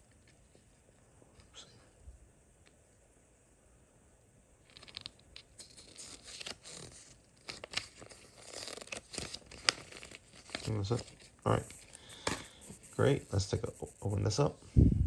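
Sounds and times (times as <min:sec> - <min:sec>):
packaging crinkling and rustling: 0:04.6 - 0:12.6.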